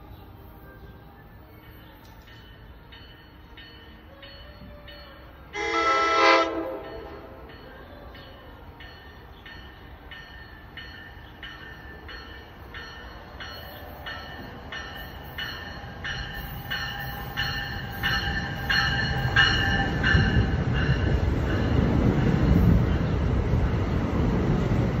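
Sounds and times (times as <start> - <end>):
train rumbling past: 0.0 - 25.0
train warning bell ringing: 1.3 - 23.6.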